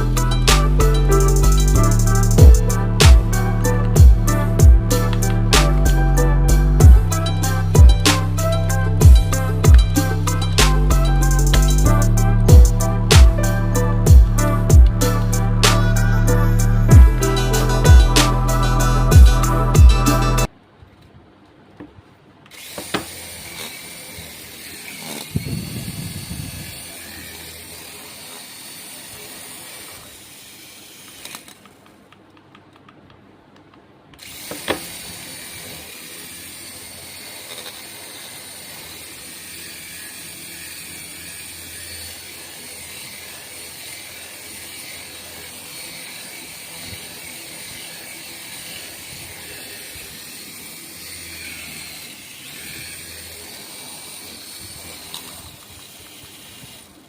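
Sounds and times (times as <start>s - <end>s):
toy motor and gears whirring: 0.0s - 20.5s, 22.5s - 32.1s, 34.2s - 57.0s
sharp click: 5.0s - 6.0s, 8.0s - 8.5s, 9.6s - 11.9s, 13.1s - 13.5s.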